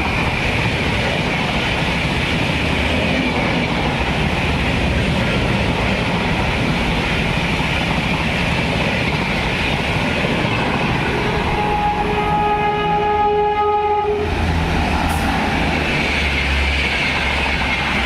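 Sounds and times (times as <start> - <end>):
train wheels rushing on rails: 0.0 - 18.0
locomotive horn held note: 11.5 - 14.3.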